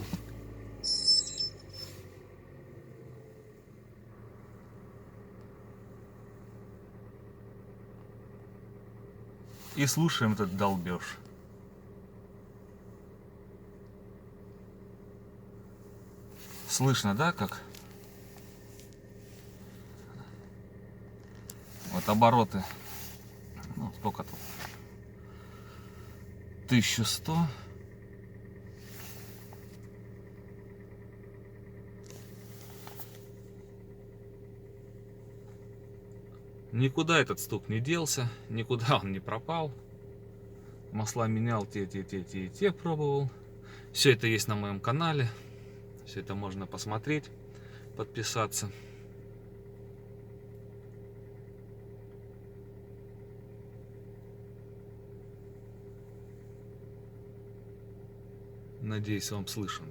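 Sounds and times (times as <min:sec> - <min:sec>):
car engine idling with knocking: 0:00.0 - 0:01.3, 0:02.2 - 0:59.9
engine knocking: 0:24.8 - 0:36.9.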